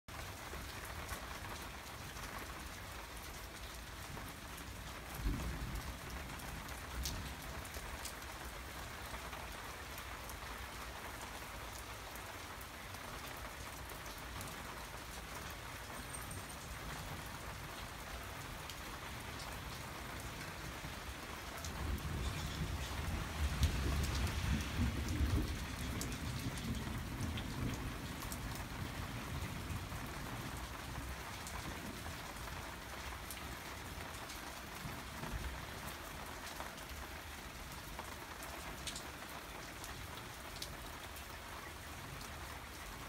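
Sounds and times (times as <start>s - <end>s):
rain falling on roofs: 0.1s - 43.0s.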